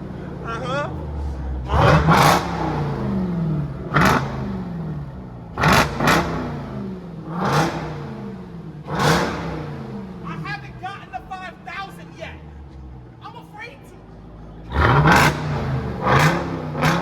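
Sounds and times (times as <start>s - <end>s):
car engine revving in blips: 1.0s - 10.4s, 14.5s - 17.0s.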